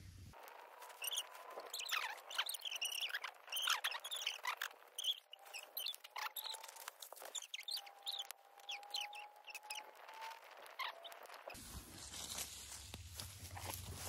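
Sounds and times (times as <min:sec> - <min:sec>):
birds chirping: 0:00.9 - 0:11.6.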